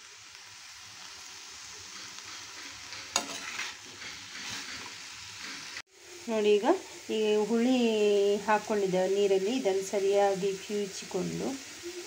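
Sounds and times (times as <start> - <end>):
gourd sizzling in pot: 0.0 - 12.0
spoon scraping pan: 1.8 - 5.8
spoon clinking on metal pan: 3.1 - 3.6.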